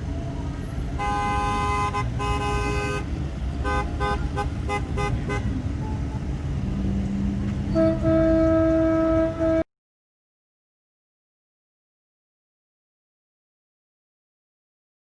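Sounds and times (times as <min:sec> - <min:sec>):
vehicle engines and road noise: 0:00.0 - 0:09.7
car horns honking: 0:00.9 - 0:06.0, 0:07.6 - 0:09.6.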